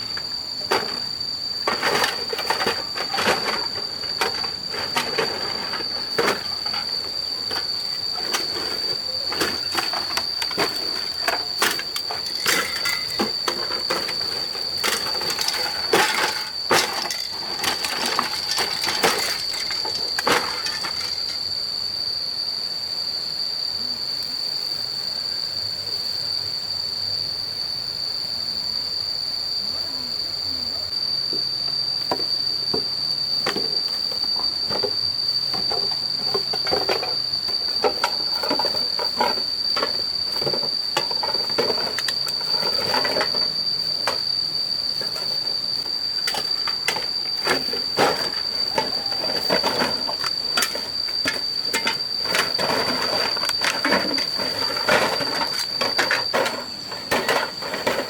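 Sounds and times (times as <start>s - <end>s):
knocking and clattering: 0.7s - 21.3s
high-pitched whine: 29.6s - 58.0s.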